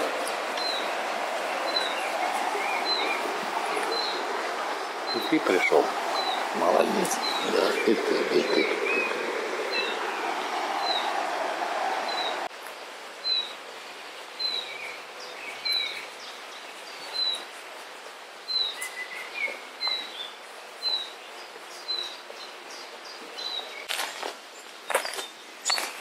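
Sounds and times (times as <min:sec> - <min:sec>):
steady rush of noise: 0:00.0 - 0:16.8
songbird high chirp: 0:00.6 - 0:00.9, 0:14.4 - 0:17.5, 0:18.5 - 0:23.9.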